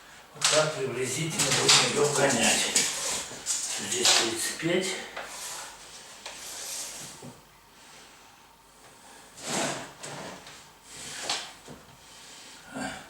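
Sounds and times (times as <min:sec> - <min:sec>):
laminate boards scraping: 0:09.4 - 0:11.4.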